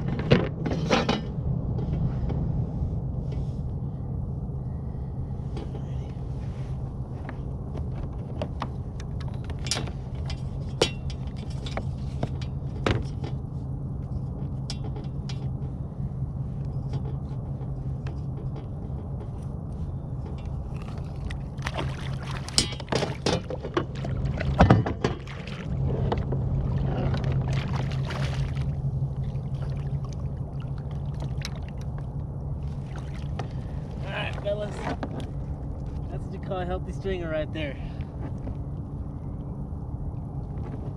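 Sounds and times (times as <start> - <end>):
water sloshing around kayak: 19.8 - 36.2.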